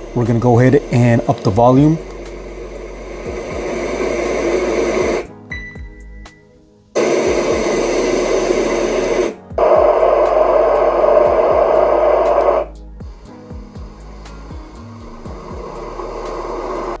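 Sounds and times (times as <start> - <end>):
white noise from small speaker: 0.0 - 6.4.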